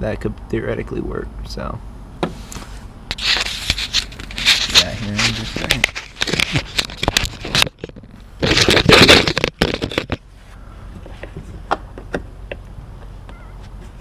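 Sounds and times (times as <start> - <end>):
plastic clicking and scraping: 3.1 - 10.2.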